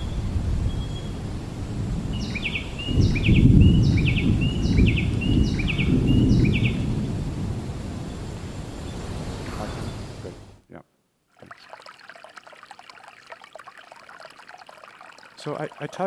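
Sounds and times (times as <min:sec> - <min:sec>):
bird singing chirping phrase: 0:02.2 - 0:06.8.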